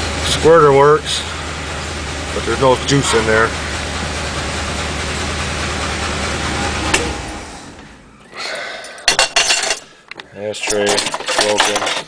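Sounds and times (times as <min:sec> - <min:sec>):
engine idling: 0:00.0 - 0:08.4.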